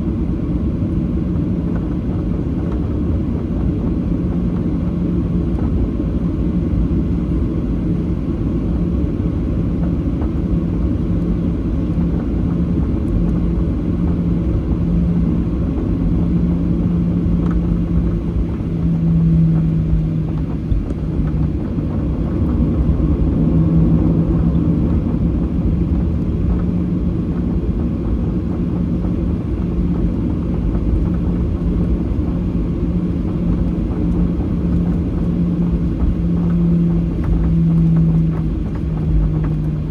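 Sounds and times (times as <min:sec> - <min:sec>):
airplane cabin engine rumble: 0:00.0 - 0:39.9
wavering hum: 0:15.9 - 0:39.9.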